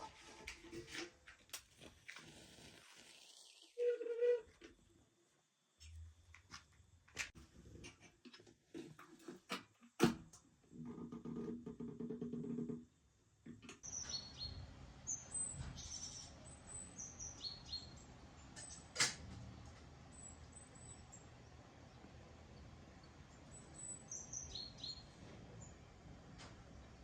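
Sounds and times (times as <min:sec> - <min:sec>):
small birds chirping: 0:13.8 - 0:18.0, 0:20.1 - 0:25.8.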